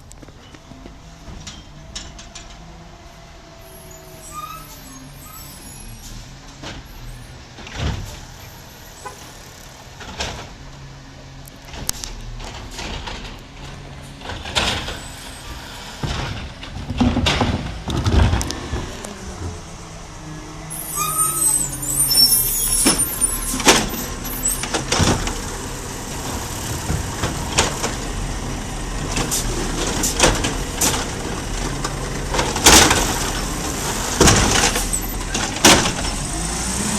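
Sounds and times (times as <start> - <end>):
garbage truck engine running: 11.9 - 36.9
clanks and bangs: 16.0 - 18.9.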